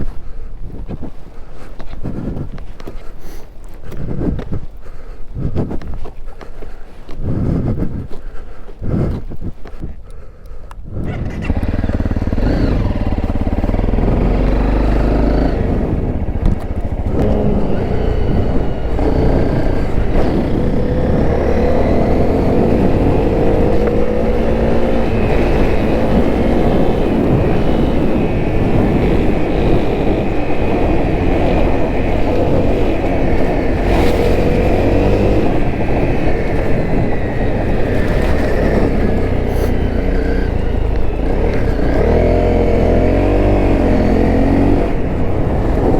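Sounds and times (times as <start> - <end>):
motorcycle engine running: 10.9 - 45.9.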